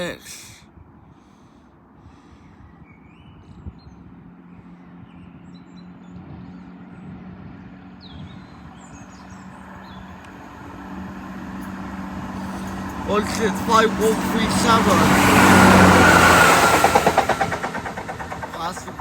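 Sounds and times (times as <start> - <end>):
diesel train engine humming: 10.7 - 19.0
birds chirping: 17.6 - 19.0.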